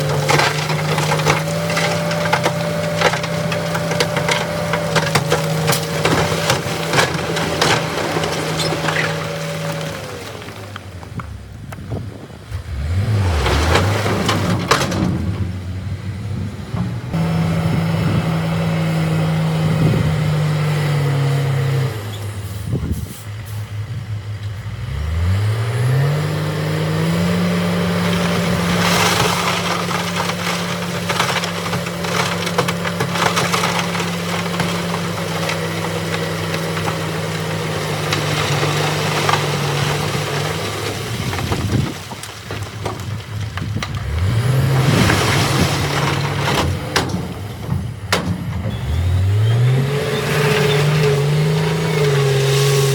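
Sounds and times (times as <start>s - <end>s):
rock knocking and cracking: 0.0s - 12.0s, 28.0s - 48.8s
heavy diesel machinery engine: 0.0s - 52.9s.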